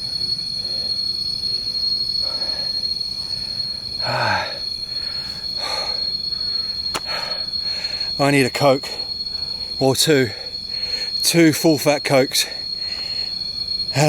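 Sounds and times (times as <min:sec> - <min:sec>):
insects ringing: 0:00.0 - 0:14.0
person breathing heavily: 0:02.2 - 0:08.2, 0:09.0 - 0:11.2, 0:12.6 - 0:13.4.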